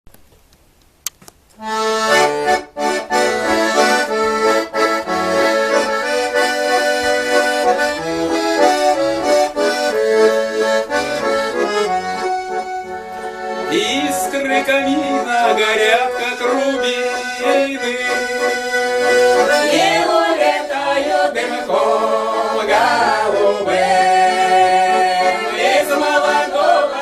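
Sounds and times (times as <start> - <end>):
accordion playing melody: 1.6 - 27.0.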